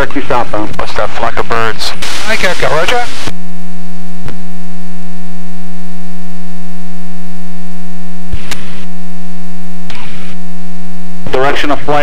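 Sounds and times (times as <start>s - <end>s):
electrical buzz on intercom: 0.0s - 12.0s
click and crackle: 8.3s - 8.9s.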